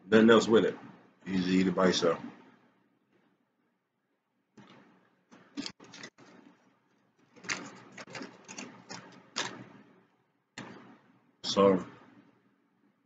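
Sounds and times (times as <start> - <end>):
chewing bread: 5.5 - 6.6, 7.2 - 9.8.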